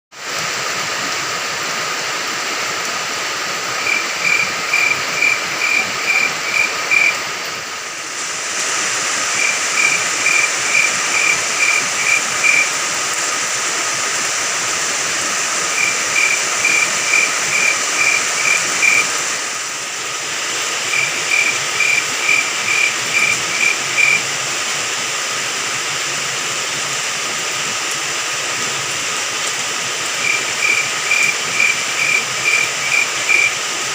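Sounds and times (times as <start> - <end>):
steady rain falling: 0.1 - 33.9
cricket chirping: 3.8 - 7.2, 9.3 - 12.8, 15.7 - 19.2, 20.8 - 24.2, 30.2 - 33.6.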